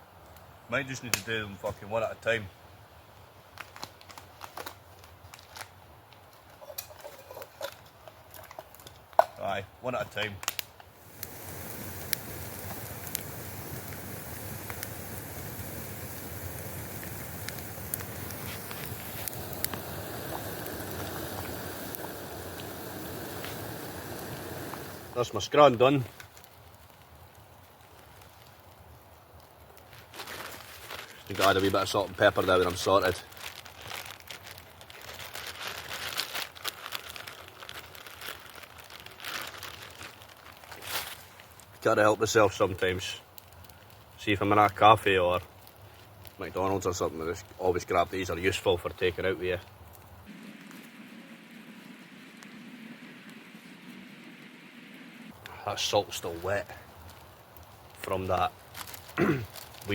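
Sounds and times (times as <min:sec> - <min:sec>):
campfire crackling: 0:00.0 - 0:59.9
packaging crinkling and rustling: 0:03.5 - 0:09.2, 0:29.7 - 0:41.8, 0:56.2 - 0:59.9
sharp pops and snaps: 0:10.2 - 0:25.2.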